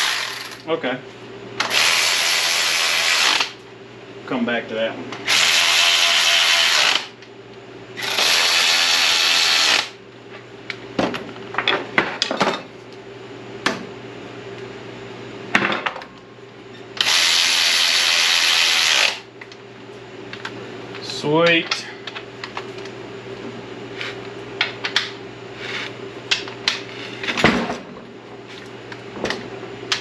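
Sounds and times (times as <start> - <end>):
power drill whining: 0.0 - 0.6, 1.6 - 3.5, 5.3 - 7.1, 8.0 - 9.9, 17.0 - 19.2.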